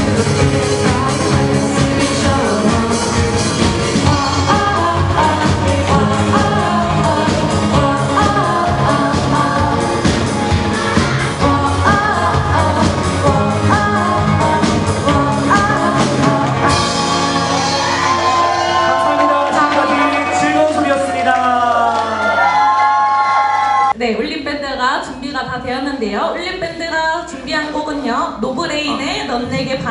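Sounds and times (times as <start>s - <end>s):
person singing: 0.0s - 20.7s
rock band playing: 0.0s - 21.2s.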